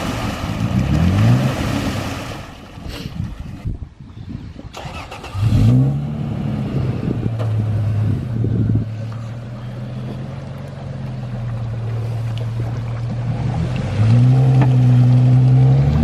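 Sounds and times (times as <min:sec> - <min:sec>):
vehicle engine revving: 0:04.8 - 0:16.0.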